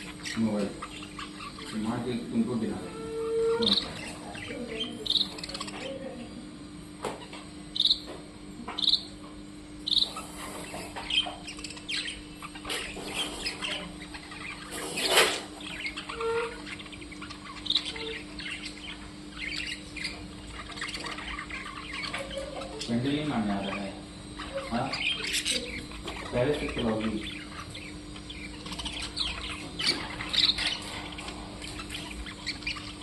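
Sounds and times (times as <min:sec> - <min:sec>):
small birds chirping: 0:00.0 - 0:33.0
steady low hum: 0:00.0 - 0:33.0.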